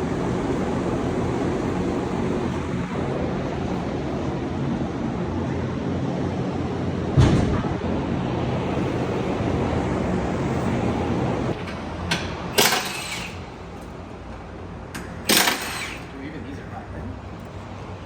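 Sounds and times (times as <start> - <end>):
car exhaust drone: 0.0 - 11.7.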